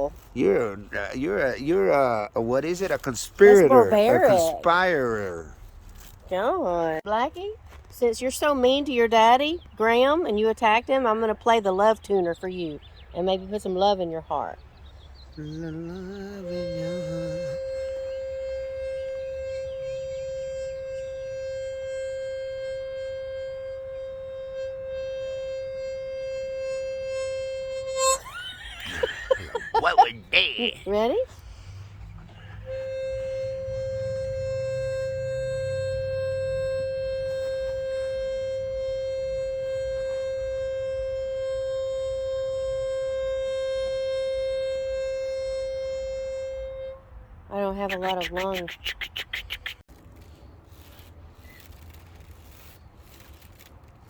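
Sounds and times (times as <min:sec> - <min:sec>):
whistle long steady tone: 0:15.4 - 0:29.6, 0:32.4 - 0:47.2
steady whistle note: 0:16.5 - 0:28.3.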